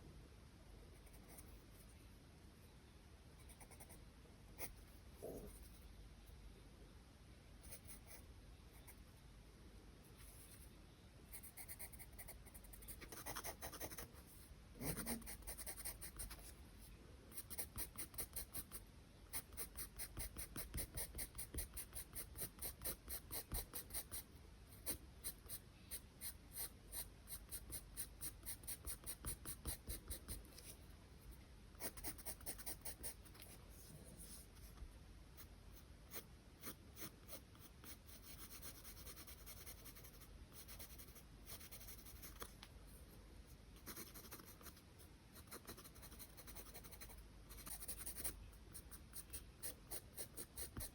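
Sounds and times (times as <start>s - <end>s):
pencil scratching on paper: 11.3s - 16.6s, 19.4s - 24.2s, 36.1s - 42.5s, 43.8s - 44.8s, 45.4s - 50.9s.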